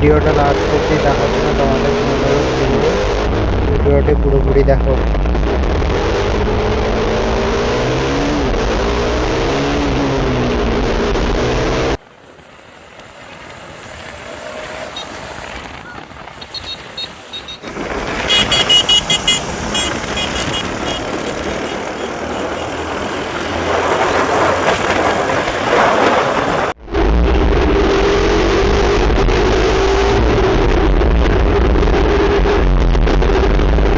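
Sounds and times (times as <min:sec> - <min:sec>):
wind rumble: 0:00.0 - 0:33.9
motorcycle engine running: 0:13.4 - 0:23.2.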